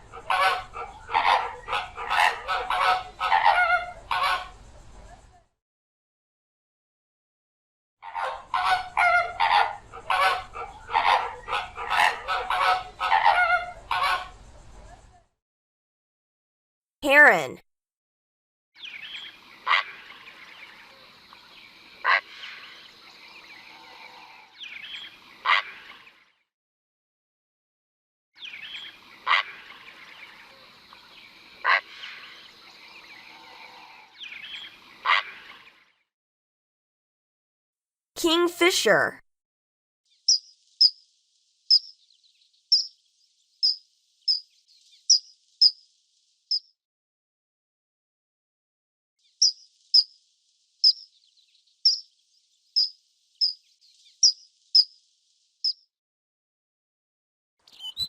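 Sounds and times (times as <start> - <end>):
small birds chirping: 18.8 - 26.2, 28.4 - 35.9, 40.1 - 46.7, 49.2 - 55.8, 57.6 - 58.0.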